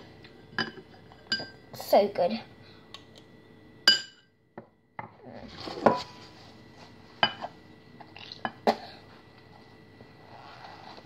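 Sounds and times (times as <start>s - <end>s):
dishes and cutlery clinking: 0.5s - 1.6s.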